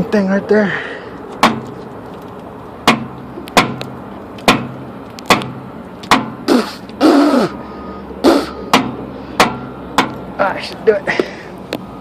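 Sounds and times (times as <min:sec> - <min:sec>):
sharp knocks: 0:01.4 - 0:01.8, 0:02.8 - 0:06.4, 0:08.7 - 0:10.2.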